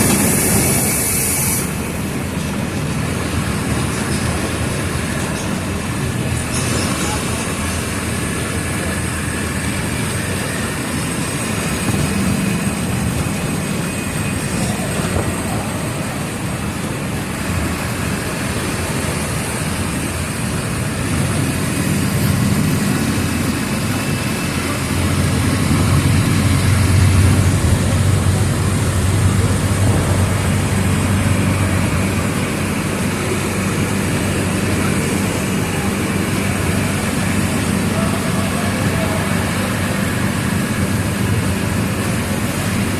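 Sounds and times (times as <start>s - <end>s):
bus diesel engine running: 0.0s - 42.9s
road noise: 0.0s - 42.9s.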